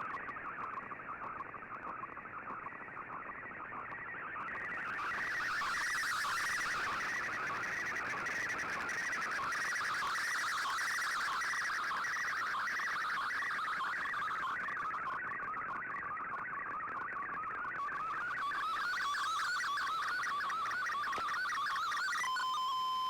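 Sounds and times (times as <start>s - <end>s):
radio data warble: 17.9s - 23.0s.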